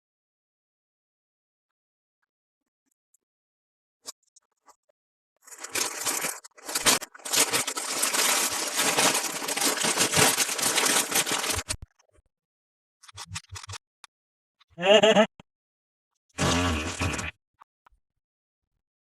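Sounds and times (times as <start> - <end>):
packaging crinkling and tearing: 5.4 - 11.8.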